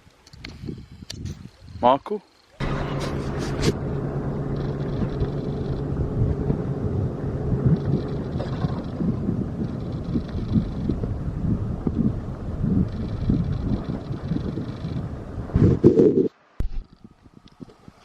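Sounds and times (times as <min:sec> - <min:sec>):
wind buffeting microphone: 0:00.4 - 0:01.9, 0:02.6 - 0:18.0
engine humming: 0:02.6 - 0:16.2.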